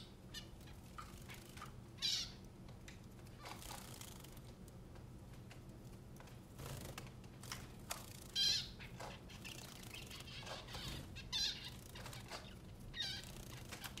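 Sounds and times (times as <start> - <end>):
bird chirping: 0.0 - 2.5, 8.2 - 14.0.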